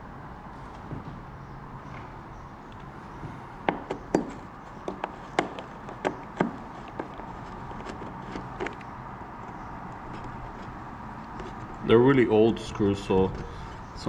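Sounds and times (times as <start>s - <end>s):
screwdriver tapping and clicking: 3.7s - 8.9s.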